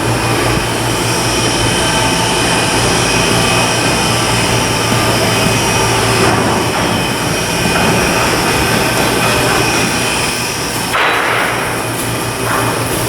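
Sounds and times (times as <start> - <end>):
machinery drone: 0.0 - 13.0.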